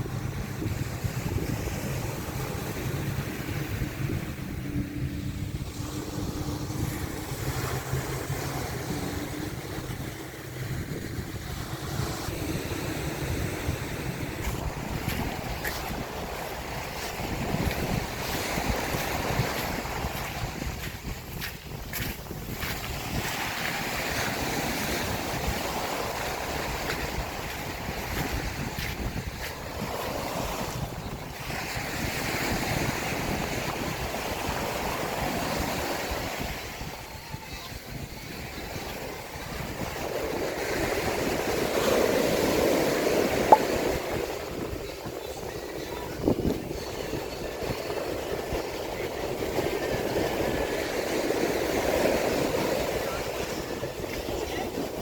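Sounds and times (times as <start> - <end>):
sea waves breaking on beach: 0.0 - 55.0
wind rumbling on microphone: 0.0 - 55.0.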